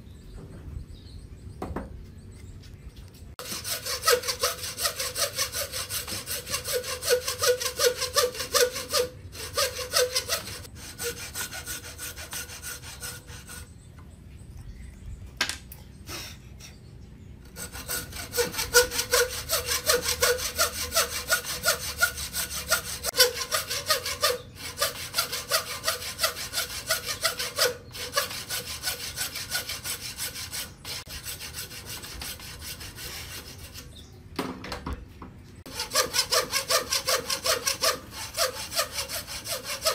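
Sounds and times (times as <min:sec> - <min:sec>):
hand saw cutting wood: 0:03.4 - 0:13.7, 0:17.4 - 0:34.0, 0:35.7 - 0:39.9.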